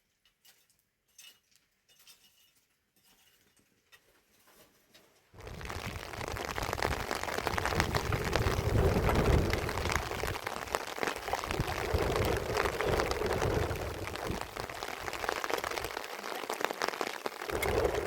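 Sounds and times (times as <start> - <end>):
heavy rain: 5.4 - 18.0.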